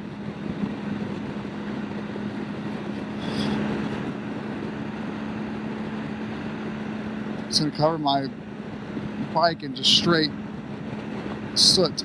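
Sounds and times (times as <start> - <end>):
motorcycle engine humming: 0.0 - 12.0
wind rush: 0.0 - 12.0.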